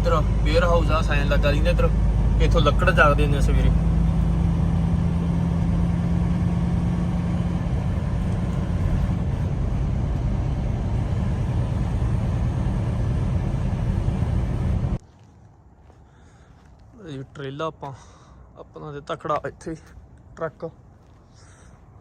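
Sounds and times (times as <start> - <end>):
diesel truck engine running: 0.0 - 15.1.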